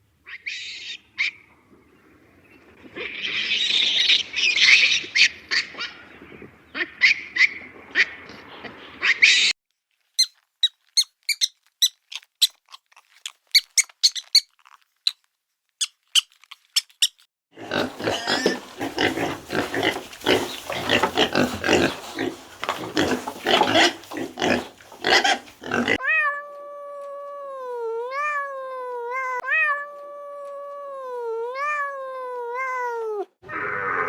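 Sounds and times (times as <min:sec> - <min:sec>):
rapid animal grunting: 0:17.6 - 0:26.0
long pitched animal call: 0:33.4 - 0:34.0.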